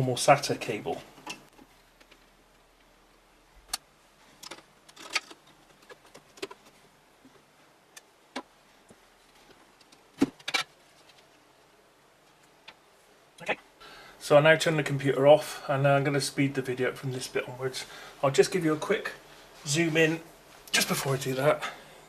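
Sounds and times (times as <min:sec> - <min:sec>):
hands handling computer parts: 0:03.7 - 0:07.4, 0:08.0 - 0:11.4.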